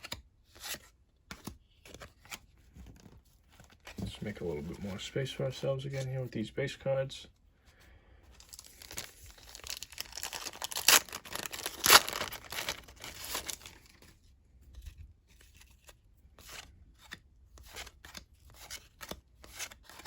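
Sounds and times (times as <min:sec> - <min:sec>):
cards tapping and rustling: 0:00.0 - 0:05.0, 0:08.4 - 0:20.0
wrapper tearing and crinkling: 0:08.4 - 0:13.9.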